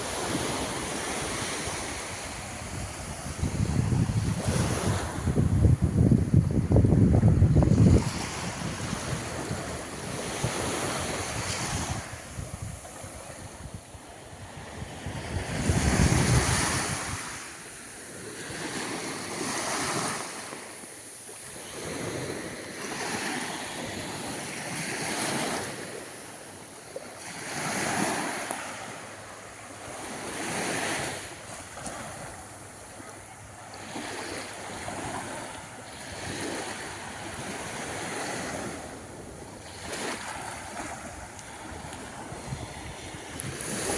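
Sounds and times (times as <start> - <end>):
small waves breaking on beach: 0.0 - 43.9
wind buffeting microphone: 1.7 - 17.4, 39.9 - 43.9.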